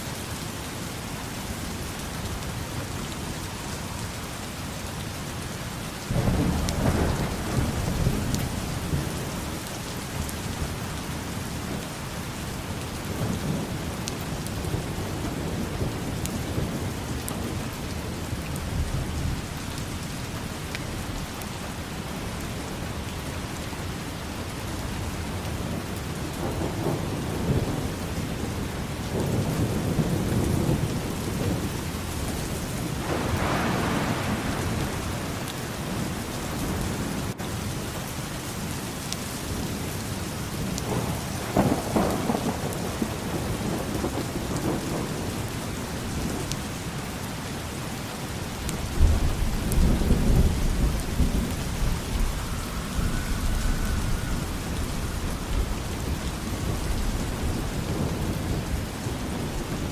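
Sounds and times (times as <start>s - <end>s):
rain falling: 0.0s - 59.9s
thunder rolling: 26.4s - 37.4s, 48.9s - 59.9s.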